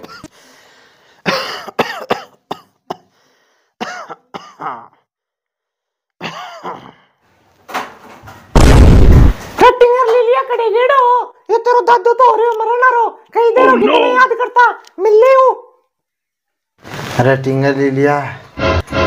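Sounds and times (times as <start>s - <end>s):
old man coughing: 0.0s - 0.3s, 1.2s - 3.1s, 3.8s - 5.1s, 6.2s - 7.2s
man clearing his throat: 1.2s - 3.1s, 3.8s - 5.1s, 6.2s - 7.1s.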